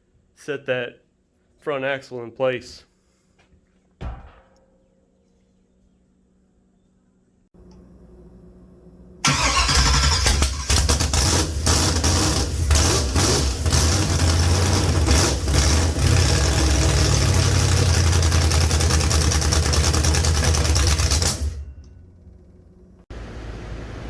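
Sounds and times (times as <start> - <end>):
vee eight engine starting and running: 9.2 - 24.0.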